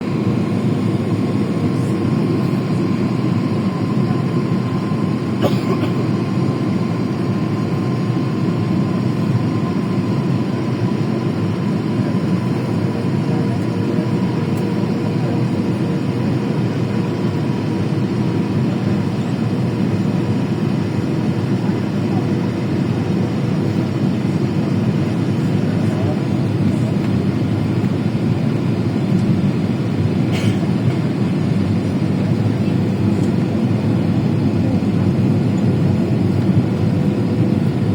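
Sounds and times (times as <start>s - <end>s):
airliner cabin engine rumble: 0.0s - 37.9s.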